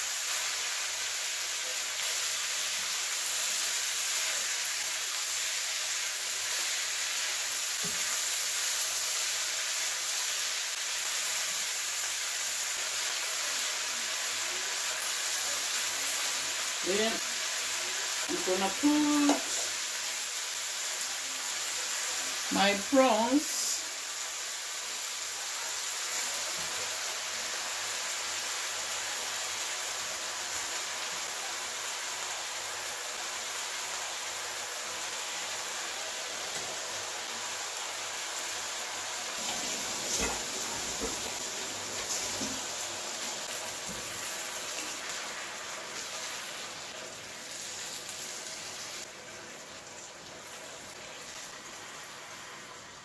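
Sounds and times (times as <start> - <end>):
prawns sizzling in a frying pan: 0.0 - 53.0.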